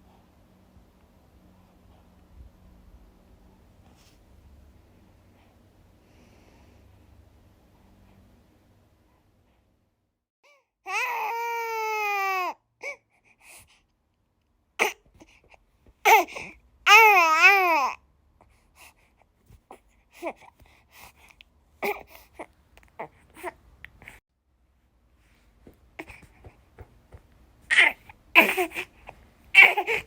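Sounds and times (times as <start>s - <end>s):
baby crying and whimpering: 10.6s - 13.1s, 16.1s - 18.0s, 21.8s - 24.1s, 27.7s - 30.0s.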